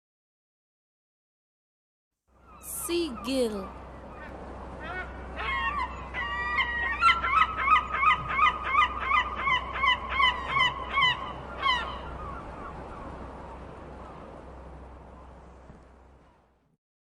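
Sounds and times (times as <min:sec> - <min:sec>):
seagull calling: 0:02.5 - 0:13.1.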